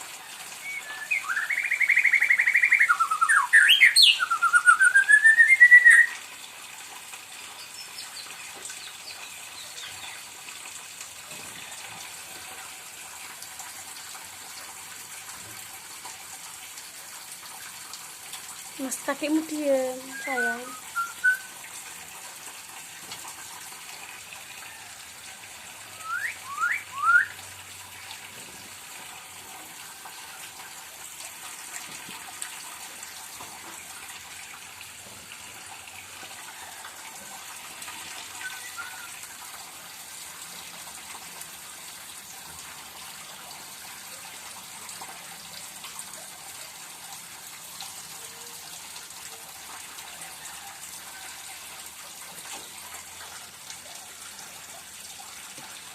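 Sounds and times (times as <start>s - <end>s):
songbird whistling: 0.6s - 6.2s, 20.0s - 21.5s, 26.0s - 27.4s, 38.4s - 39.2s.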